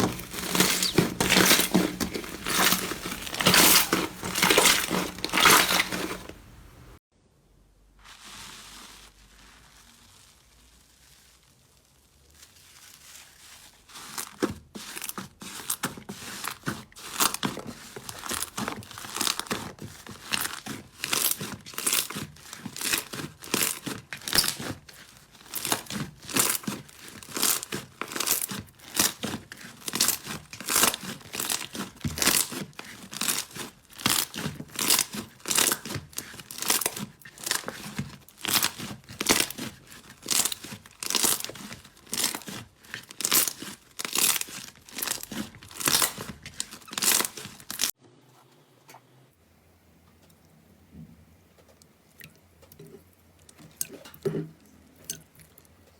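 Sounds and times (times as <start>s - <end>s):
slime squishing and popping: 0.0s - 6.2s.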